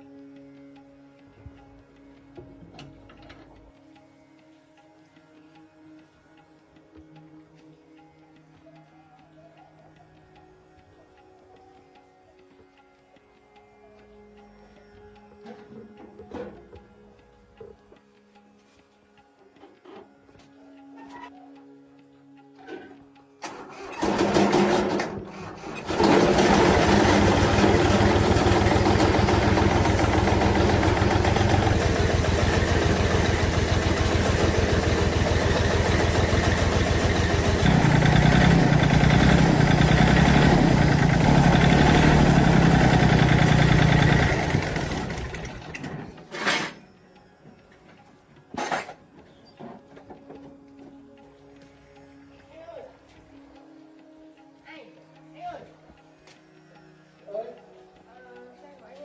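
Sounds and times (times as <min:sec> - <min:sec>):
tractor diesel engine starting and running: 0:23.4 - 0:46.7.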